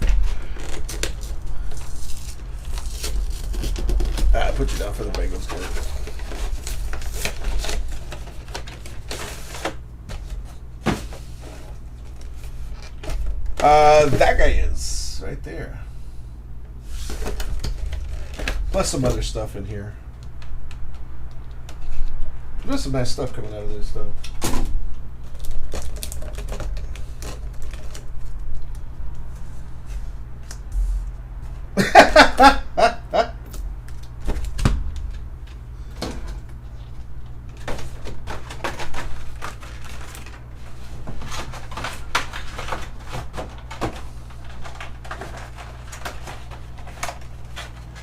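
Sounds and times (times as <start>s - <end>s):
cards and wrappers rustling: 0.0s - 15.7s, 16.8s - 19.9s, 25.2s - 30.5s, 33.8s - 48.0s
steady low hum: 0.0s - 48.0s.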